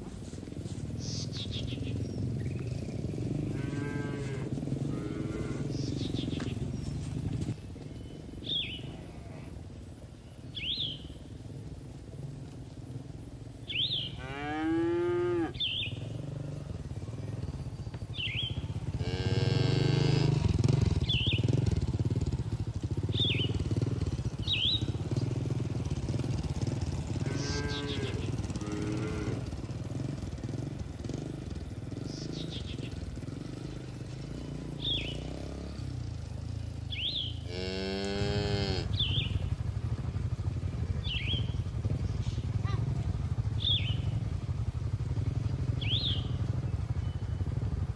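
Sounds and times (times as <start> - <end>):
bird chirping: 0.9 - 9.0, 10.2 - 11.4, 13.6 - 14.6, 15.2 - 19.0, 19.8 - 29.2, 31.9 - 35.8, 36.4 - 37.5, 38.9 - 44.6, 45.2 - 47.7
cattle mooing: 3.4 - 5.9, 14.2 - 15.6, 18.9 - 20.6, 27.2 - 29.6, 37.4 - 39.0.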